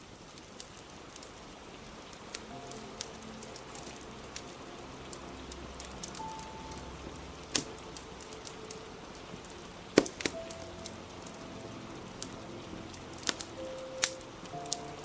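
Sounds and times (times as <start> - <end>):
fire crackling: 0.0 - 15.0
steady rain: 0.0 - 15.0.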